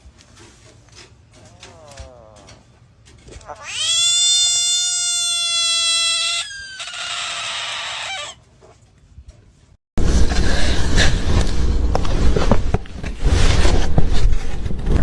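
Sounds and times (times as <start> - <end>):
cat meowing and yowling: 3.4 - 8.4.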